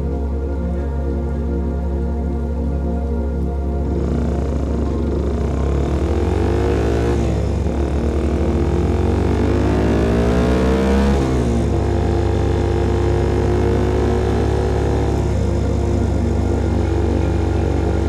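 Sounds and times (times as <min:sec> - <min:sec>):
motorcycle engine revving: 0:03.8 - 0:18.0.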